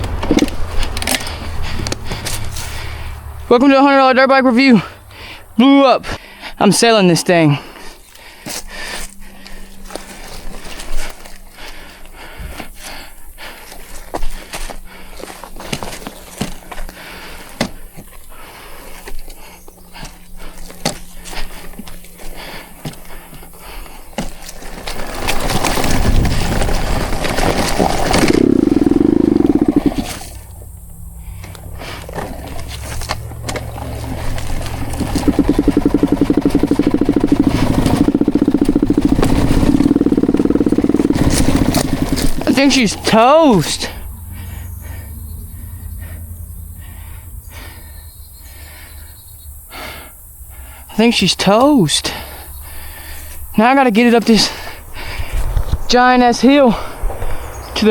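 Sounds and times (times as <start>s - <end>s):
person breathing hard: 0.7s - 3.4s, 4.8s - 6.6s, 7.5s - 15.6s, 16.5s - 24.2s, 43.8s - 50.9s, 52.1s - 53.5s, 54.4s - 55.7s
two-stroke dirt bike engine: 19.4s - 30.4s, 31.4s - 45.0s
knocks and clicks: 34.5s - 42.4s
person talking: 42.4s - 43.9s.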